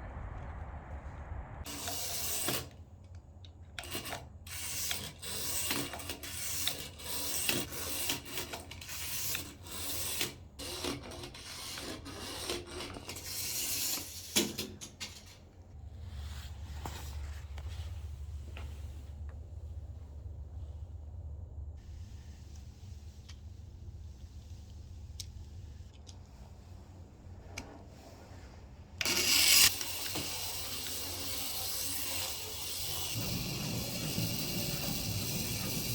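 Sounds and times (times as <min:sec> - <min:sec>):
low steady hum: 0:00.0 - 0:01.8, 0:15.1 - 0:29.1.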